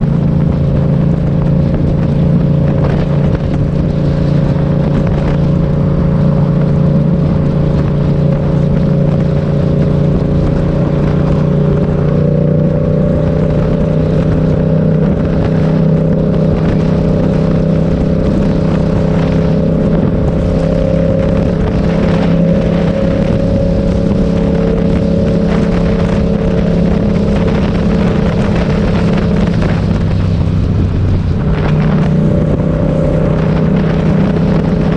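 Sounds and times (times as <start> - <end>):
motorcycle engine running steadily: 0.0 - 34.9.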